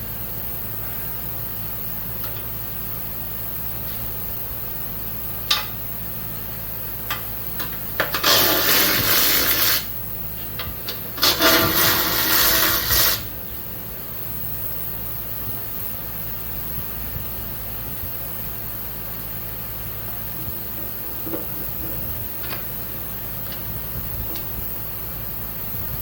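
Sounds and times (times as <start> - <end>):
sharp clicks and knocks: 5.5 - 5.8
rough scraping rattling: 8.0 - 10.0, 10.8 - 13.4.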